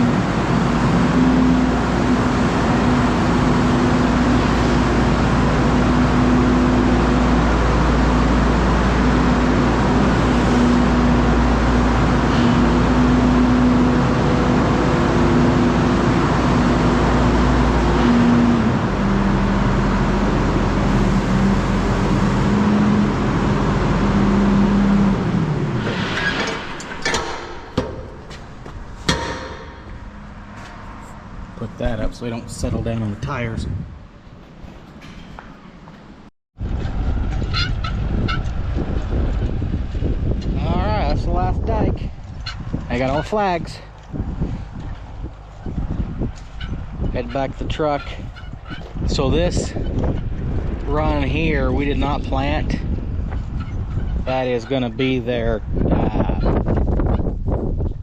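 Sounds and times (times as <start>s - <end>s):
tractor engine running: 0.0s - 55.8s
sharp clicks and knocks: 26.2s - 31.1s.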